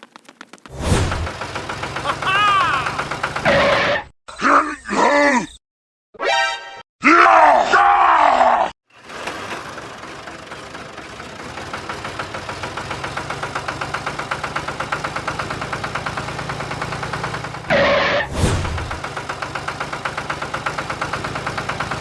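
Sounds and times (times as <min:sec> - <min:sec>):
small engine knocking: 0:00.0 - 0:03.8, 0:08.9 - 0:17.8, 0:18.8 - 0:22.0.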